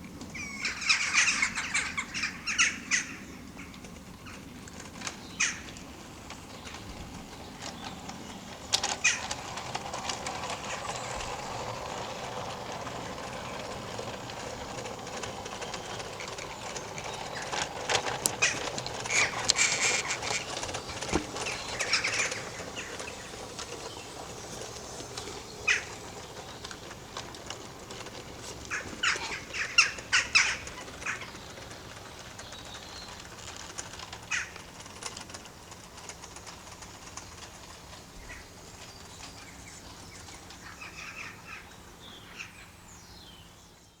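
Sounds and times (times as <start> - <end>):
birds chirping: 0.4 - 33.5
bird falling call: 18.4 - 26.0.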